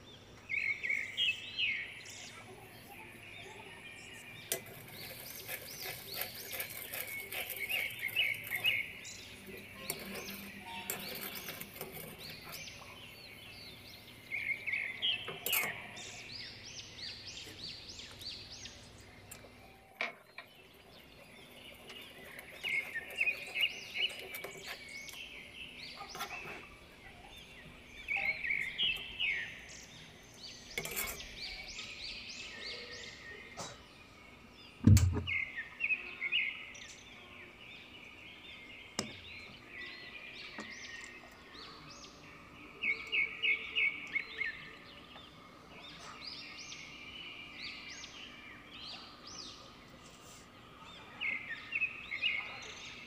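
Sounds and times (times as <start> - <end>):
small birds chirping: 0.0 - 53.0
dull thump: 34.8 - 35.3.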